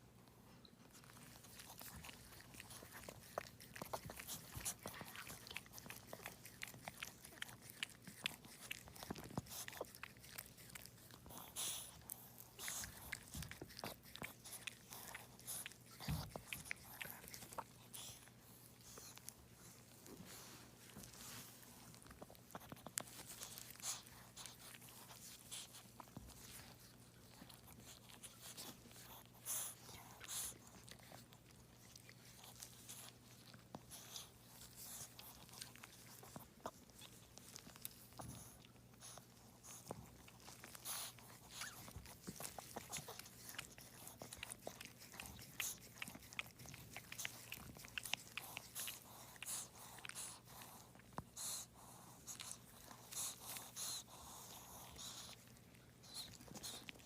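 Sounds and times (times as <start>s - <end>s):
faint clicks and smacking: 0.0s - 57.0s.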